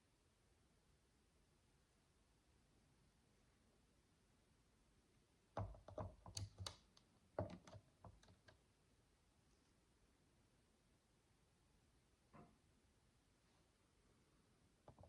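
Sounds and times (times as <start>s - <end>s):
plastic bricks clicking: 5.6s - 8.5s.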